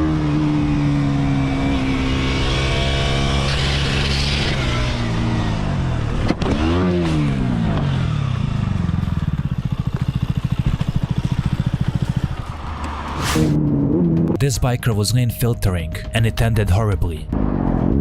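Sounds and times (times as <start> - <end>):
motorcycle engine running: 0.0 - 14.4
vehicle passing by: 11.2 - 14.3.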